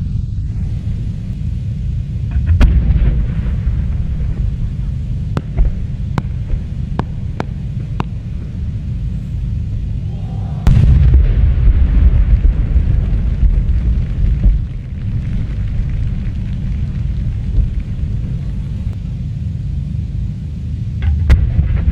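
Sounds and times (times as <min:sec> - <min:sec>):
low rumble: 0:00.0 - 0:21.9
fireworks cracking: 0:03.4 - 0:08.9, 0:10.7 - 0:18.9
fireworks boom: 0:10.0 - 0:17.8.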